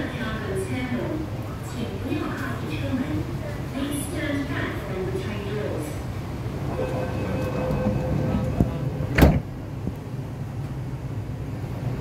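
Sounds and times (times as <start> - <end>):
train equipment humming: 0.0 - 12.0
faint held tone: 6.6 - 8.5.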